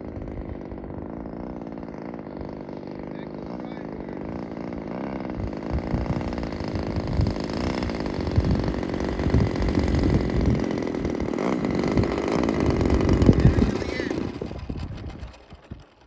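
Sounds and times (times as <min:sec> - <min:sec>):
small two-stroke engine buzzing: 0:00.0 - 0:16.0
wind buffeting microphone: 0:05.2 - 0:16.0.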